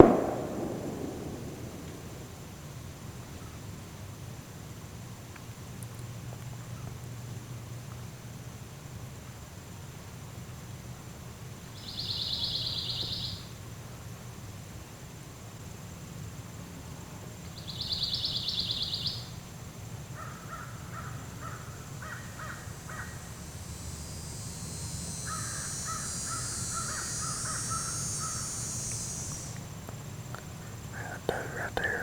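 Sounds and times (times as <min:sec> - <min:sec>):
crows cawing: 0:20.2 - 0:23.2
high buzzing drone: 0:22.6 - 0:29.6.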